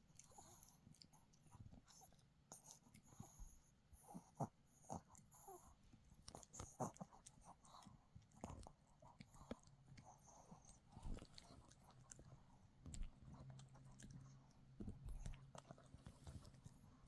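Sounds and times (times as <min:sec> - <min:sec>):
dog chewing hard chew: 0:06.3 - 0:16.9.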